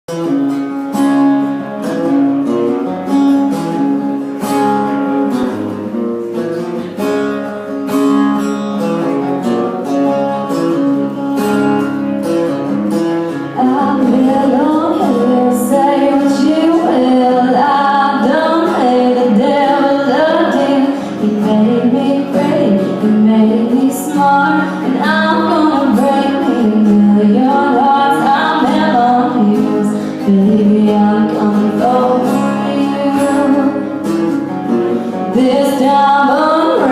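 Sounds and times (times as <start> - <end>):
acoustic guitar: 0.1 - 36.9
woman singing: 13.5 - 34.1, 35.1 - 36.9.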